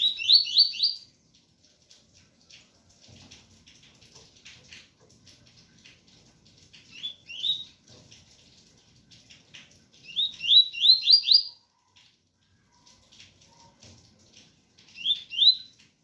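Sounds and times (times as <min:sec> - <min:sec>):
bird singing whistled notes: 0:00.0 - 0:01.0, 0:07.0 - 0:07.7, 0:10.1 - 0:11.6, 0:15.0 - 0:15.7
faint rain patter: 0:00.0 - 0:16.0.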